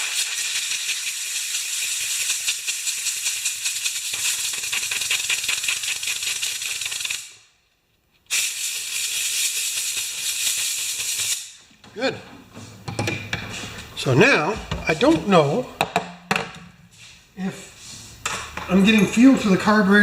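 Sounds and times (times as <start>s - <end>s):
compressed air hissing: 8.3s - 11.6s.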